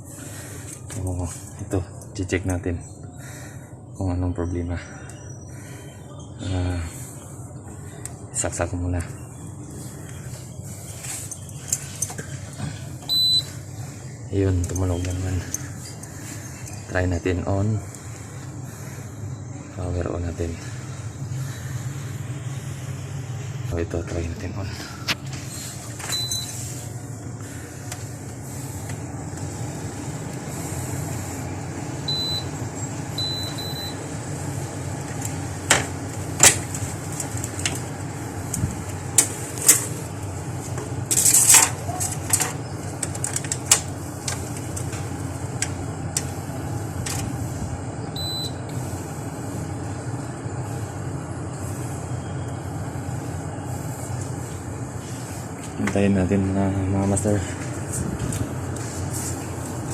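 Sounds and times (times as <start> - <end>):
air conditioner humming: 0.0 - 59.9
short high beeps: 13.1 - 13.5.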